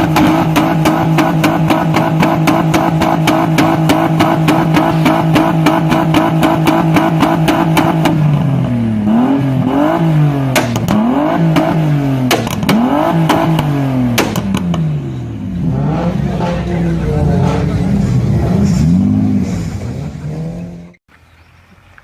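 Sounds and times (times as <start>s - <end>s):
sharp exhaust cracks: 0.0s - 8.4s, 10.0s - 14.9s
car engine revving: 0.0s - 21.0s.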